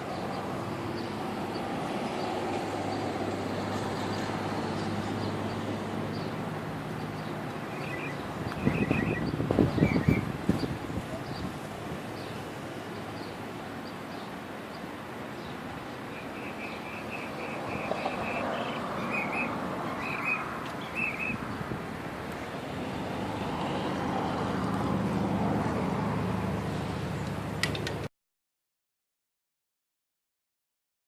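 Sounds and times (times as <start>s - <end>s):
vehicle passing: 0.0s - 13.7s, 15.2s - 27.6s
bird chirping: 7.0s - 11.5s, 12.2s - 21.4s.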